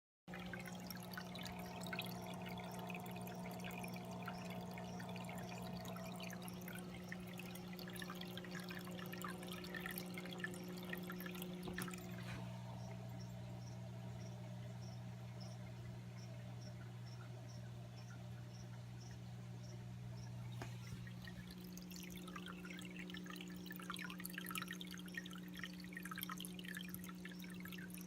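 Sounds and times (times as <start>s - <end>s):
small splashes: 0.3s - 13.2s
water pump humming: 0.3s - 28.0s
water trickling and dripping: 0.3s - 28.0s.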